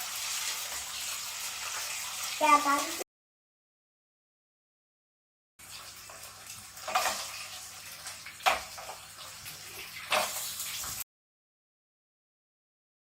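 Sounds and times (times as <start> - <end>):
tap water running: 0.0 - 3.0, 5.6 - 11.0.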